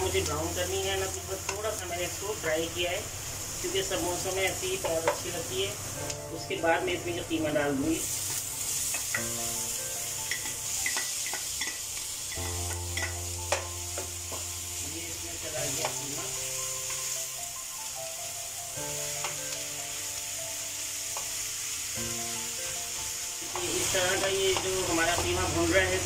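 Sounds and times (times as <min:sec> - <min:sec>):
meat and onions sizzling in oil: 0:00.0 - 0:26.0
spatula tapping the pan: 0:01.4 - 0:01.6, 0:10.2 - 0:14.5, 0:23.5 - 0:25.5.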